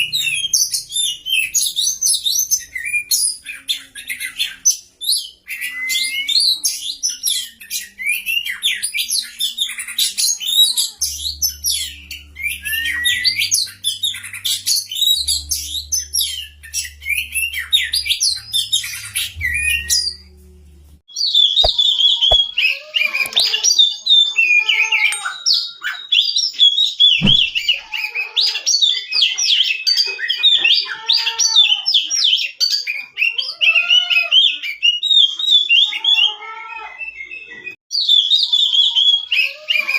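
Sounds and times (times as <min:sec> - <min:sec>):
bird song of rapid chirps: 0:00.0 - 0:20.4
thump: 0:27.2 - 0:27.6.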